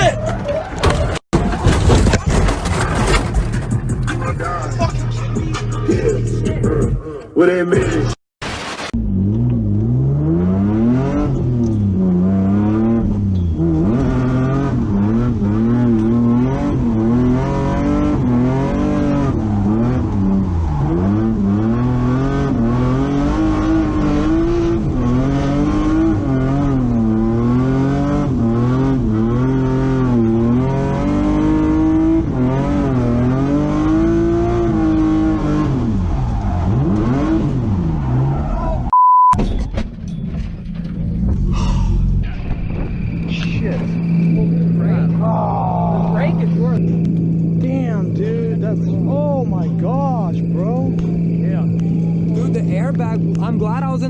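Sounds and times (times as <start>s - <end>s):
car engine revving: 8.8s - 38.9s, 40.9s - 54.0s.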